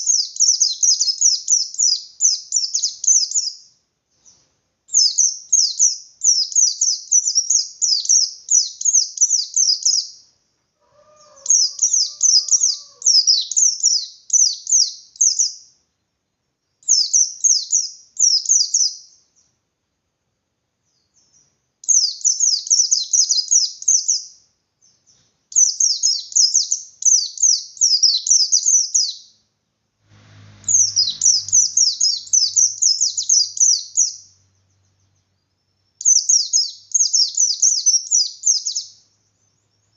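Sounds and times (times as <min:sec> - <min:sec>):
bird singing high rapid notes: 0:11.2 - 0:15.7, 0:30.2 - 0:39.9.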